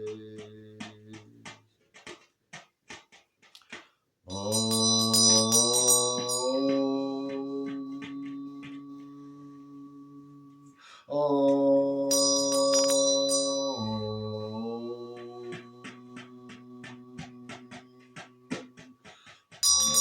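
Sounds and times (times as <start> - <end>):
soft drum taps: 15.1 - 19.7.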